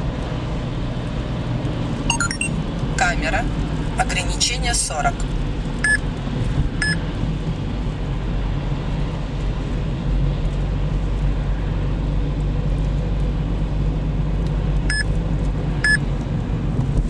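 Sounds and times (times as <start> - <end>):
car road and engine rumble: 0.0 - 17.0
short electronic beeps: 2.1 - 2.6, 15.8 - 16.0.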